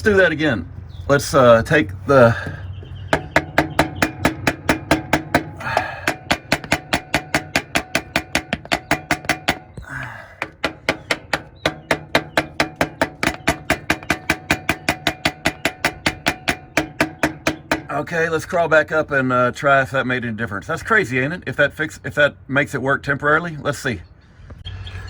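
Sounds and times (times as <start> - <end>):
rapid metal taps on starter motor: 3.1 - 9.8, 10.4 - 18.0.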